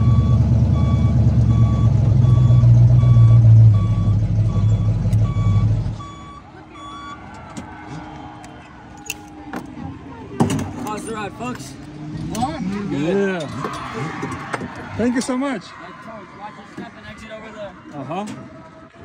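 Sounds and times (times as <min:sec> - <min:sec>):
truck engine running loud: 0:00.0 - 0:06.4
reversing alarm beeping: 0:00.0 - 0:07.4.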